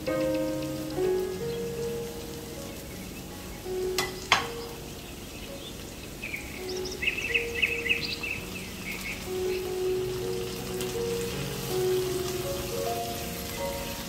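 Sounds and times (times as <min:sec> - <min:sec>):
food sizzling in a frying pan: 0:00.0 - 0:14.0
soft held music tones: 0:00.0 - 0:14.0
bird chirps: 0:02.6 - 0:10.8.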